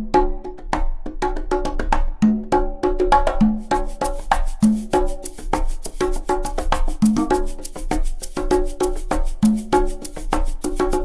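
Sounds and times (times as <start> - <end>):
background music with percussive beat: 0.0 - 11.0.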